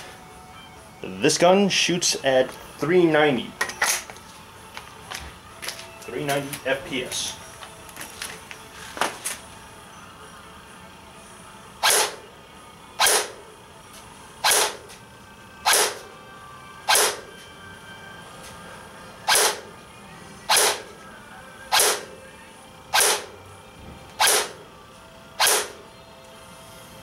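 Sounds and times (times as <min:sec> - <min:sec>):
airsoft rifle shots: 0:11.8 - 0:12.2, 0:13.0 - 0:13.4, 0:14.4 - 0:14.8, 0:15.6 - 0:16.1, 0:16.9 - 0:17.2, 0:19.3 - 0:19.7, 0:20.5 - 0:20.8, 0:21.7 - 0:22.1, 0:22.9 - 0:23.3, 0:24.2 - 0:24.6, 0:25.4 - 0:25.8.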